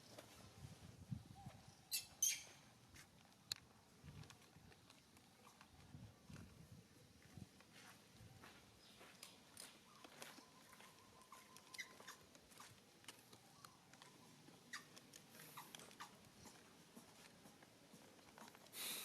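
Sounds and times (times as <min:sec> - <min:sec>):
baby monkey clicks and squeaks: 0:01.9 - 0:02.6, 0:09.2 - 0:18.7.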